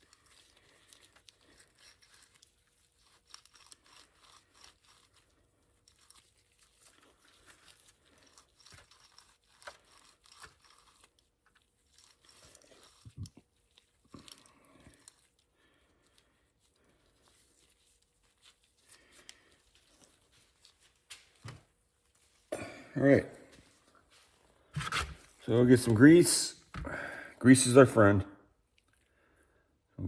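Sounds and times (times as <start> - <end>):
rag rubbing bicycle bearings: 0.0 - 14.4.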